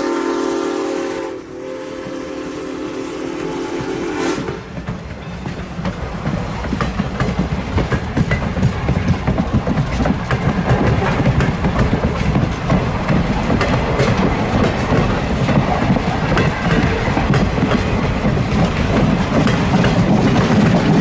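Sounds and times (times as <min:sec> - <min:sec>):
train whistle chord: 0:00.0 - 0:04.8
train passing with heavy rumble: 0:00.0 - 0:21.0
wheels clacking over rail joints: 0:04.4 - 0:21.0.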